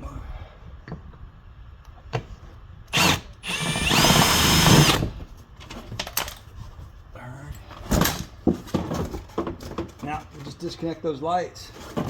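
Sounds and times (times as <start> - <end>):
power drill whining: 2.9 - 5.2.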